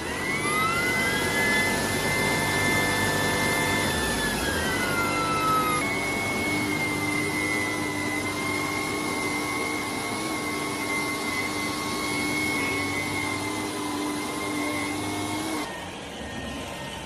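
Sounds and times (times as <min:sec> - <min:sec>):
vacuum cleaner motor running: 0:00.0 - 0:17.0.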